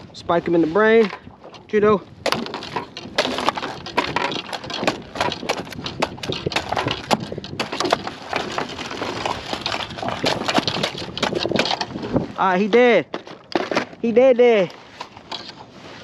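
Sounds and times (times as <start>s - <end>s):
fish knocking against kayak: 1.0s - 12.2s.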